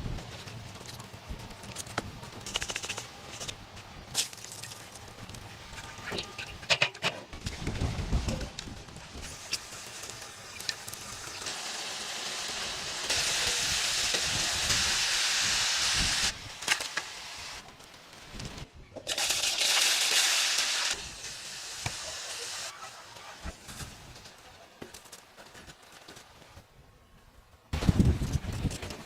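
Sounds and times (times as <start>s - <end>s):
chicken sizzling in hot oil: 9.2s - 17.6s, 19.1s - 23.0s.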